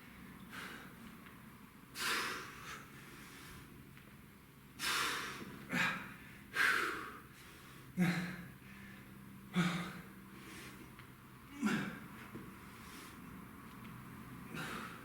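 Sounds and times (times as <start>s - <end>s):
man breathing hard: 0.4s - 1.0s, 1.9s - 3.7s, 4.8s - 10.9s, 14.4s - 15.0s
man grunting: 8.0s - 8.5s, 11.5s - 12.0s.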